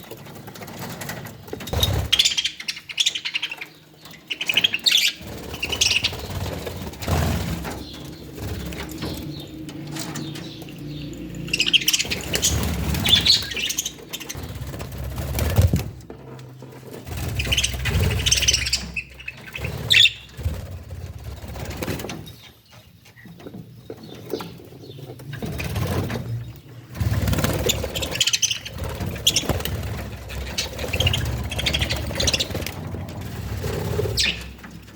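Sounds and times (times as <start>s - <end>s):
small birds chirping: 0.0s - 34.9s
wing flutters: 4.2s - 22.4s, 25.3s - 34.9s.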